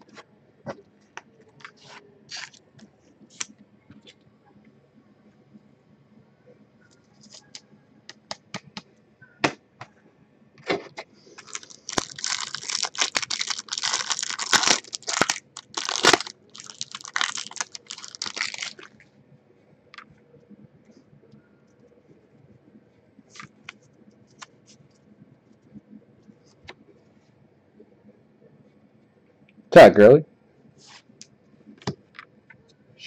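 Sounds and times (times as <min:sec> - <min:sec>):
wrapper crackling and crinkling: 0:01.7 - 0:02.6, 0:11.4 - 0:19.0, 0:23.3 - 0:24.6.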